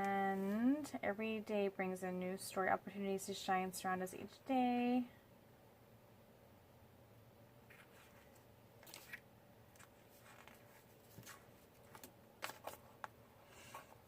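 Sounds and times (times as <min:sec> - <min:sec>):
paper clicking and rustling: 0:08.8 - 0:09.2, 0:09.8 - 0:13.1.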